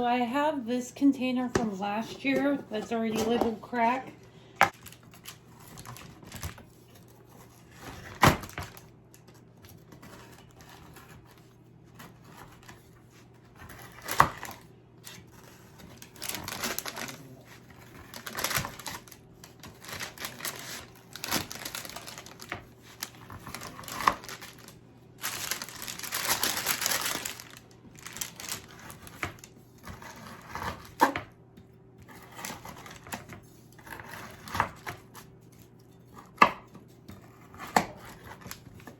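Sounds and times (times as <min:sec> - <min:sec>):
paper crinkling: 0:04.7 - 0:11.5, 0:12.5 - 0:29.7.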